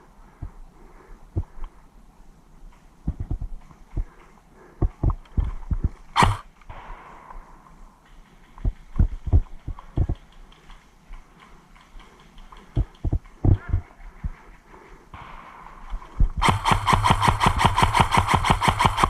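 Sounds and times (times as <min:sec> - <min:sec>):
low thuds: 0:03.0 - 0:04.2, 0:04.8 - 0:10.2, 0:15.2 - 0:16.9
sharp crack: 0:06.2 - 0:08.7.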